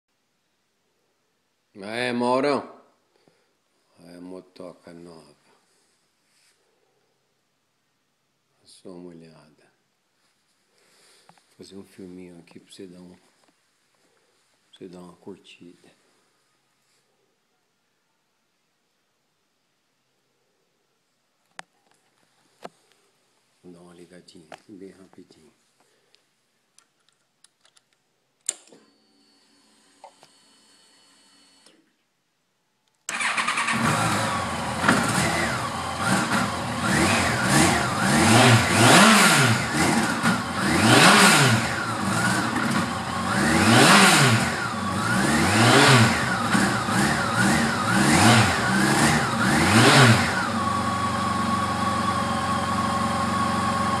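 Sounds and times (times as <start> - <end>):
motorcycle engine revving: 33.1 - 54.0.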